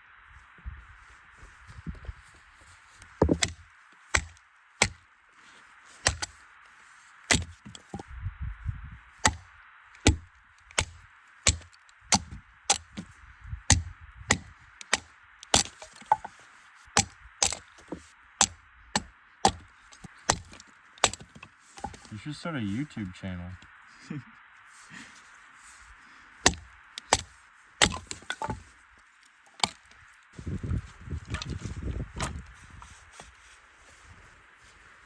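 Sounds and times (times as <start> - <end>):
firewood being chopped: 2.6 - 6.4, 7.2 - 8.0, 9.2 - 13.1, 13.7 - 22.2, 26.4 - 28.8, 29.5 - 33.5.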